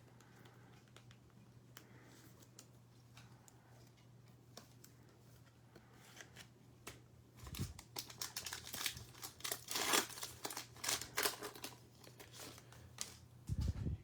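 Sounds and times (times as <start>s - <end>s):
foil wrapper crinkling: 7.4s - 13.3s.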